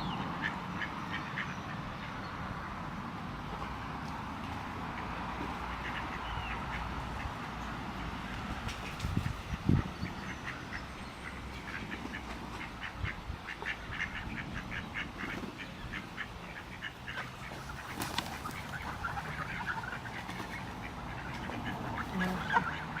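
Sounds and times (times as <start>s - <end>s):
ducks quacking: 4.9s - 8.2s, 8.8s - 23.0s.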